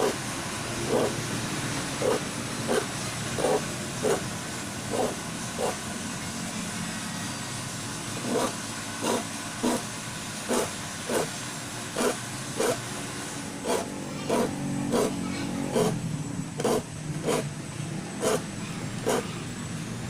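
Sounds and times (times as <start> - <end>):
file rasping on saw teeth: 0.8 - 1.2, 2.0 - 4.3, 4.9 - 5.8, 8.2 - 9.9, 10.5 - 11.3, 12.0 - 12.8, 13.6 - 16.0, 16.6 - 17.5, 18.2 - 19.4.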